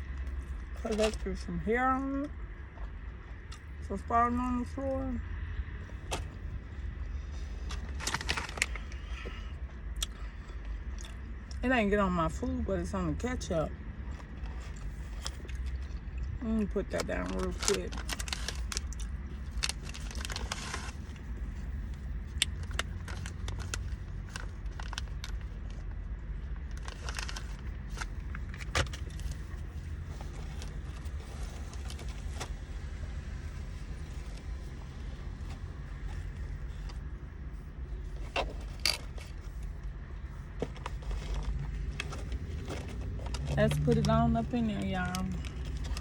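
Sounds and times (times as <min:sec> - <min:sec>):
low vehicle rumble: 0:00.0 - 0:46.0
food and packaging handling clicks: 0:17.0 - 0:25.9, 0:26.5 - 0:32.5, 0:45.0 - 0:46.0.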